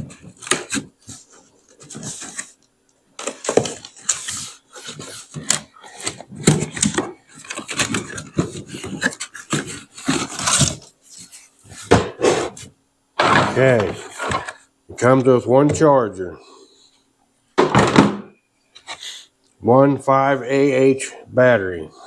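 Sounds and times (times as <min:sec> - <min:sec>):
packaging rustling and scraping: 0:00.0 - 0:02.6, 0:03.2 - 0:14.7.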